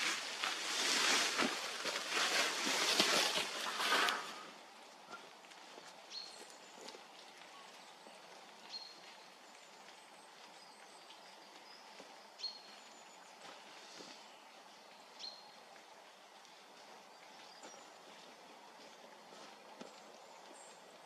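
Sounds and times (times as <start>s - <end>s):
faint woodland ambience: 0.0s - 21.0s.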